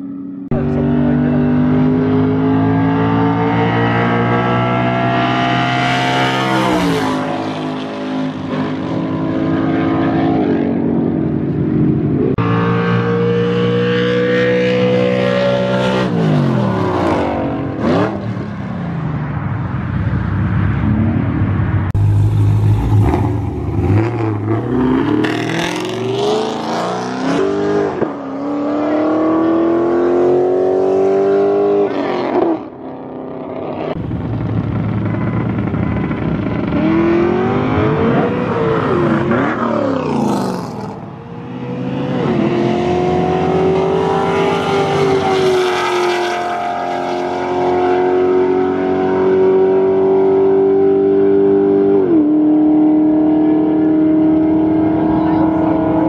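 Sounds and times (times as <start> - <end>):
car engines revving: 0.0 - 56.0
car passing at speed: 17.3 - 32.7, 36.4 - 56.0.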